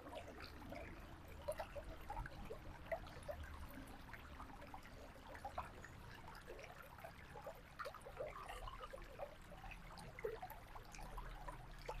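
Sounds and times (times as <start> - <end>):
faint river water running: 0.0 - 12.0.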